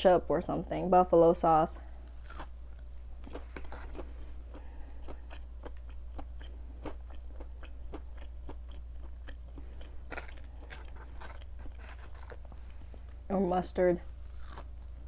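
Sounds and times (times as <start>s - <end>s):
crunchy chewing: 2.0s - 13.3s, 14.0s - 15.0s.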